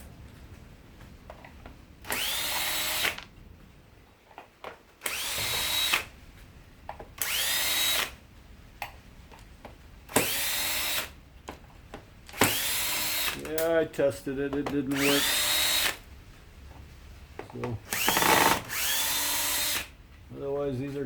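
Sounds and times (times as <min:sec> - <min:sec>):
power drill whining: 0:02.0 - 0:03.2, 0:05.0 - 0:06.2, 0:07.2 - 0:08.2, 0:10.1 - 0:11.2, 0:12.3 - 0:13.6, 0:14.9 - 0:16.1, 0:17.8 - 0:20.0.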